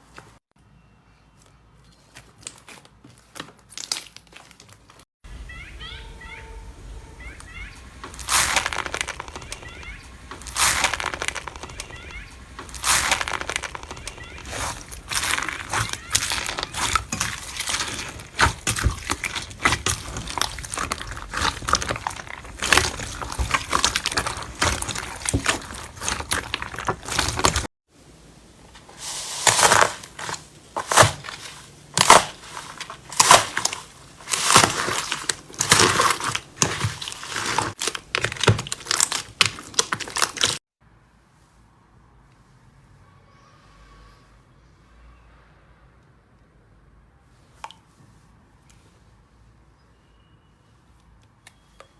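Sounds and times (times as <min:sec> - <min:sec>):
slime crackling and crunching: 0:02.2 - 0:27.7, 0:28.8 - 0:40.6.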